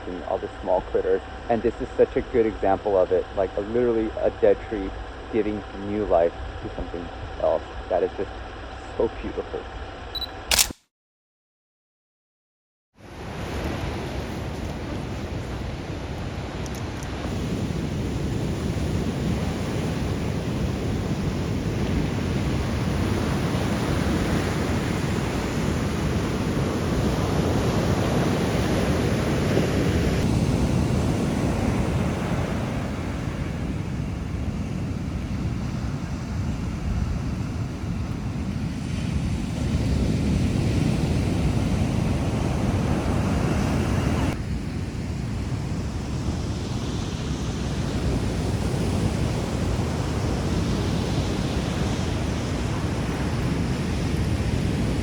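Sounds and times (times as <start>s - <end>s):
ocean surf breaking: 45.8s - 55.0s.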